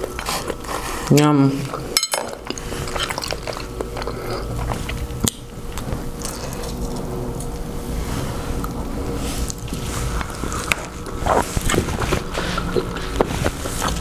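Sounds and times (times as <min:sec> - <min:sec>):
wet chewing and smacking: 0:01.7 - 0:07.6, 0:09.4 - 0:14.0.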